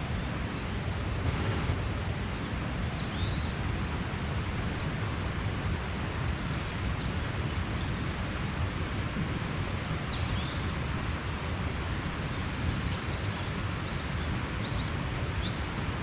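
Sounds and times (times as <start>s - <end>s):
mountain stream rushing: 0.0s - 16.0s
bird chirping: 0.6s - 1.8s.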